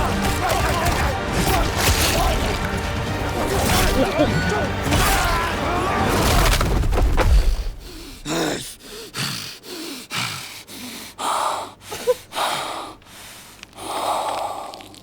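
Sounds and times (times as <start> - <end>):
person panting and gasping: 7.4 - 15.0.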